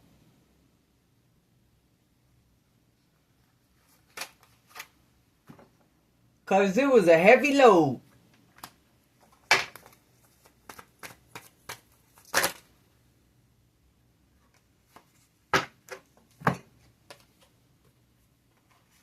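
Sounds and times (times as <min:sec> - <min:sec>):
cards snapping and tapping: 0:08.5 - 0:12.6.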